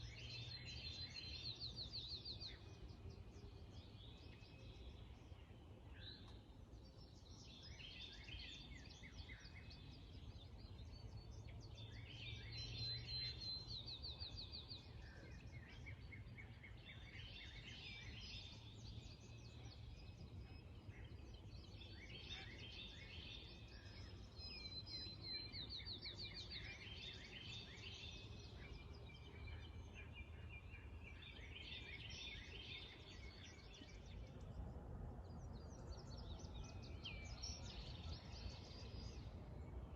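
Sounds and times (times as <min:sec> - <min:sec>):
songbird singing trills: 0:00.0 - 0:39.9
faint low rumble: 0:33.1 - 0:39.9.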